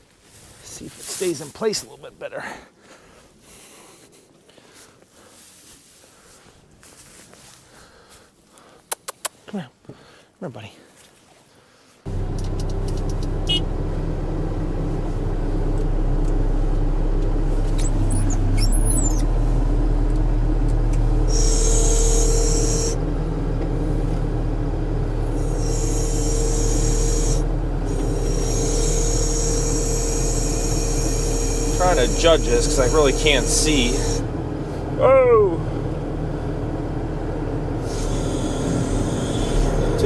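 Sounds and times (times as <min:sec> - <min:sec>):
hiss and whine: 0:12.1 - 0:23.0, 0:25.3 - 0:34.3, 0:37.8 - 0:40.0
diesel engine running under load: 0:12.1 - 0:40.0.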